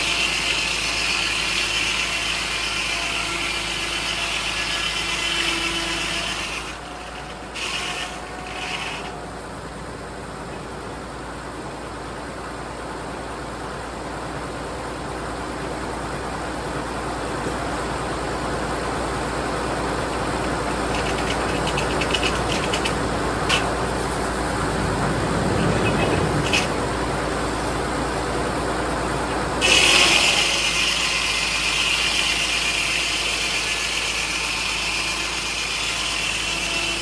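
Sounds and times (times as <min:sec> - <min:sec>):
diesel tractor engine running: 0:00.0 - 0:37.0
sharp clicks and rattles: 0:20.0 - 0:27.1.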